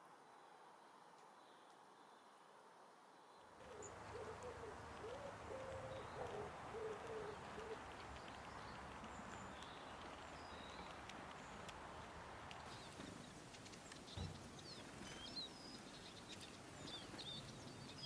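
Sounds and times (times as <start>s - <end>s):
small birds chirping: 3.1s - 18.0s
dove cooing: 3.6s - 8.0s.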